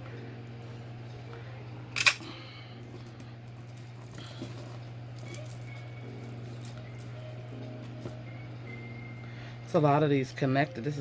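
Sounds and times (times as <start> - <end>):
steady low hum: 0.0 - 11.0
jewelry pieces rustling and clicking: 2.9 - 7.1.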